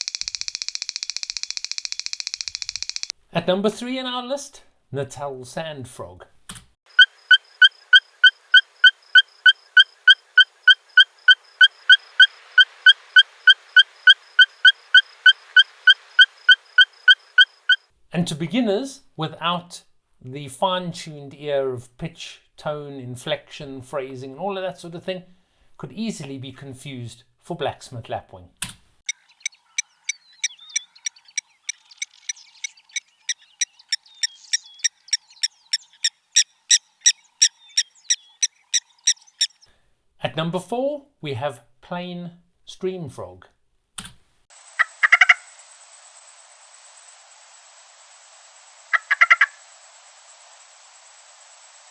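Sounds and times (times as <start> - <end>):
bird sharp metallic tink calls: 0.0 - 3.1, 6.9 - 17.8, 29.1 - 39.7, 44.6 - 51.9
frog calling high-pitched notes: 6.9 - 17.9, 44.6 - 45.8, 48.8 - 49.8
faint whistled bird calls: 29.1 - 39.7.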